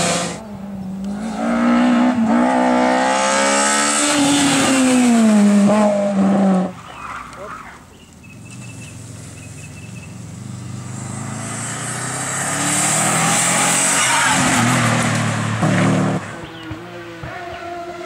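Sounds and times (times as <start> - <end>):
race car passing at speed: 10.2 - 18.0.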